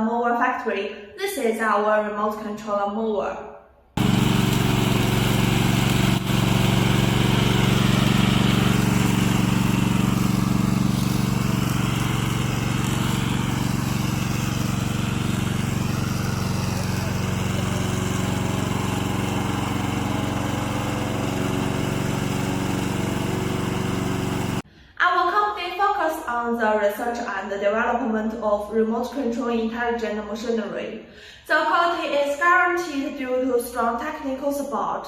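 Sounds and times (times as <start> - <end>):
lawn mower engine running: 4.0 - 24.6.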